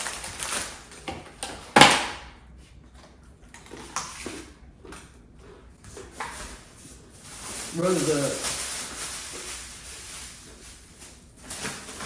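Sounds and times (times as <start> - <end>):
pretzel crackle: 6.2 - 12.0.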